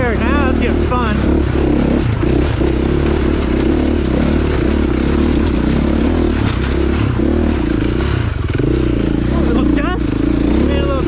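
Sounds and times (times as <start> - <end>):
dirt bike engine under load: 0.0 - 11.0
rocks clattering under tyres: 1.4 - 8.8.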